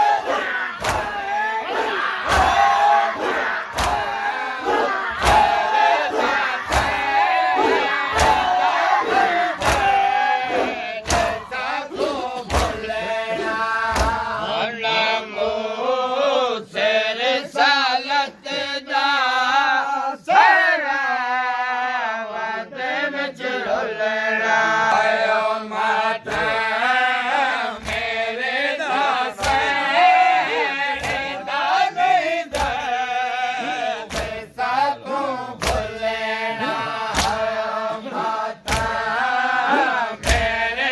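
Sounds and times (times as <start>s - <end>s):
hands slapping chests: 0.0s - 14.4s, 26.3s - 26.6s, 27.7s - 28.2s, 28.9s - 31.5s, 32.5s - 33.0s, 33.6s - 34.6s, 35.6s - 40.7s
group chanting: 0.0s - 40.9s.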